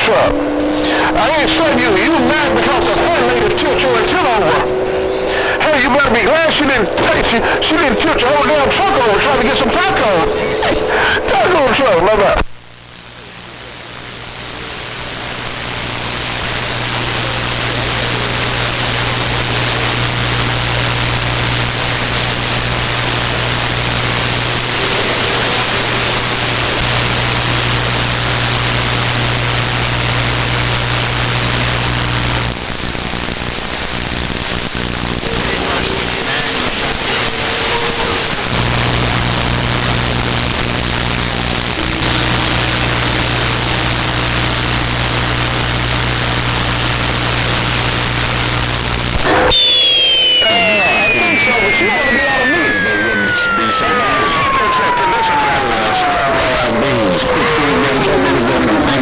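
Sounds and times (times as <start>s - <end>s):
radio static hiss: 0.0s - 59.0s
faint tones: 36.8s - 59.0s
low hum: 38.4s - 59.0s.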